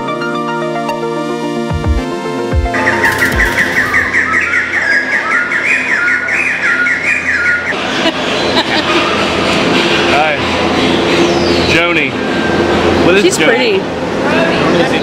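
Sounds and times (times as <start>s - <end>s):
background music: 0.0s - 6.4s
birds calling rapid rising notes: 2.4s - 13.1s.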